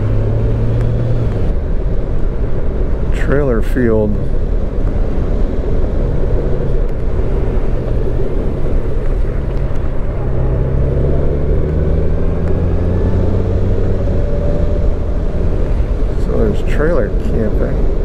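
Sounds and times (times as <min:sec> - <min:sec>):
motorcycle engine accelerating: 0:00.0 - 0:01.6, 0:05.9 - 0:17.7.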